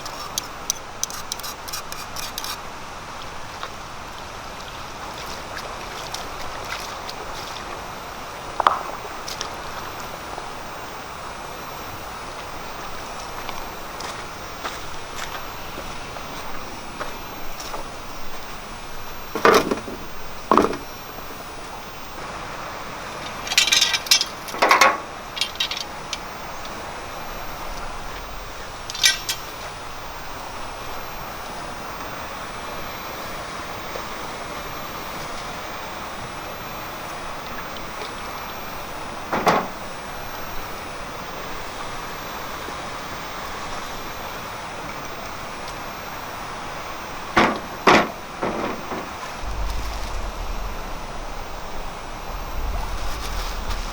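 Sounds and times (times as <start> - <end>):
background hiss: 0.0 - 53.9
light metallic clinks: 23.4 - 26.2
steady rushing noise: 47.8 - 53.9.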